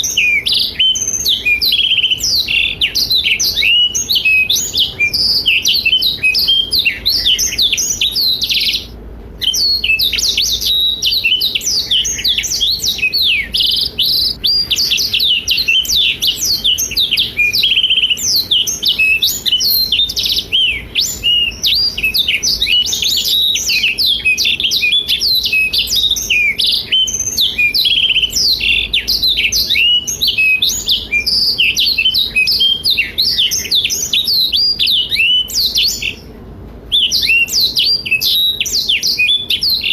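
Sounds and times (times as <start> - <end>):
canary singing high warbling song: 0.0 - 39.9.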